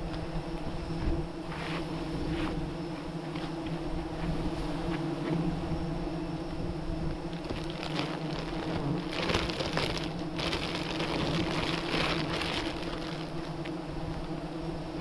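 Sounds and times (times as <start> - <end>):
bees buzzing: 0.0 - 15.0
rustling and crackling: 7.0 - 14.4.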